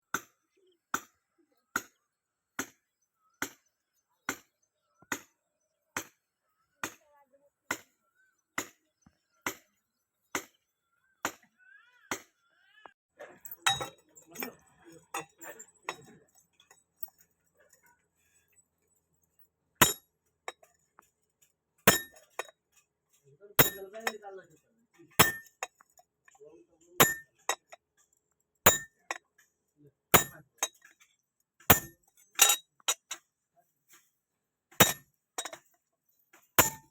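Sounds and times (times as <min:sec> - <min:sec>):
small knocks and clinks: 0:13.2 - 0:34.1, 0:34.7 - 0:36.9
hammer striking iron on anvil: 0:21.9 - 0:22.5, 0:23.6 - 0:24.2, 0:25.2 - 0:25.6, 0:27.0 - 0:27.3, 0:28.7 - 0:29.0, 0:30.2 - 0:30.5, 0:31.7 - 0:32.6, 0:34.8 - 0:35.6, 0:36.6 - 0:36.9.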